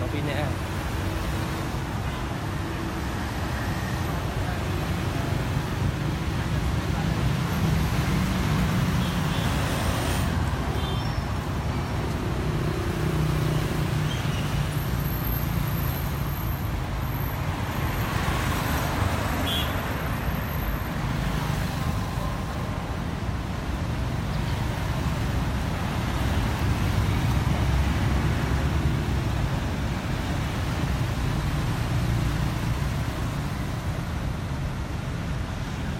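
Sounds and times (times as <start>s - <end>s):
road traffic rumble: 0.0s - 35.9s.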